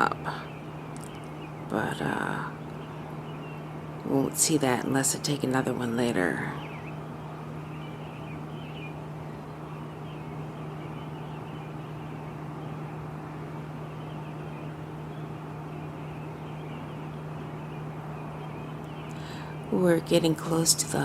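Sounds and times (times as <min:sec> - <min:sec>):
birds chirping: 0:00.0 - 0:21.0
distant traffic: 0:00.0 - 0:21.0
steady low hum: 0:00.0 - 0:21.0.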